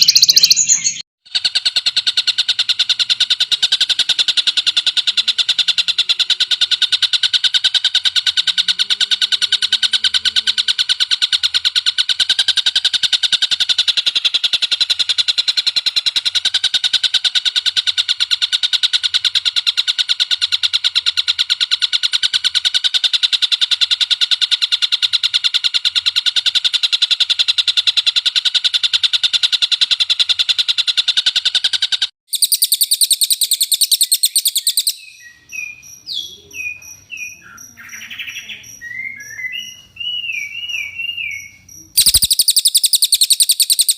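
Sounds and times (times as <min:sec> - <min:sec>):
high-pitched bird call: 0:00.0 - 0:01.0, 0:32.3 - 0:43.9
songbird rapid trill: 0:00.0 - 0:43.9.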